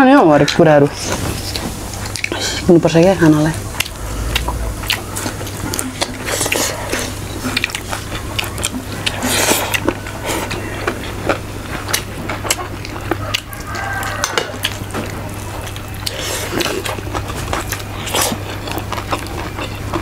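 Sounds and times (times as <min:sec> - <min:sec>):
people chewing and biting food: 0:00.4 - 0:20.0
steady low hum: 0:00.9 - 0:13.4.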